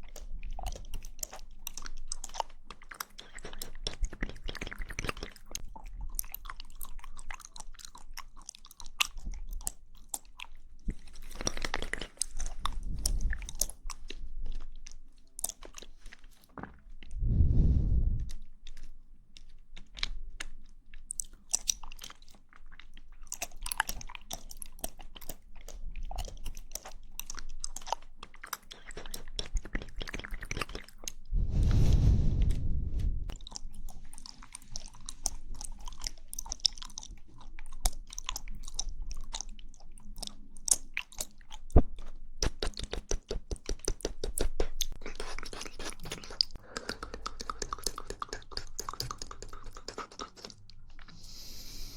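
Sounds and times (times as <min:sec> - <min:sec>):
wet chewing clicks and smacks: 0:00.0 - 0:17.2, 0:18.2 - 0:31.3, 0:33.3 - 0:51.4
low rumble: 0:17.2 - 0:18.4, 0:31.3 - 0:33.4.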